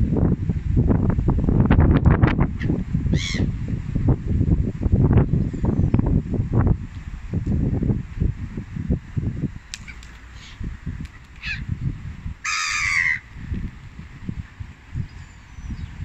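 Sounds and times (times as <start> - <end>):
wind rumbling on microphone: 0.0 - 16.0
harsh rasping bird call: 3.1 - 3.5, 12.4 - 13.3.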